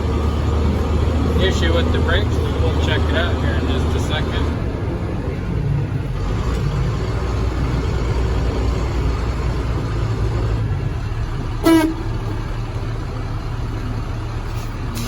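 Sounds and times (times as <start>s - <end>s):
truck engine running: 0.0s - 15.0s
horn toot: 11.6s - 12.1s.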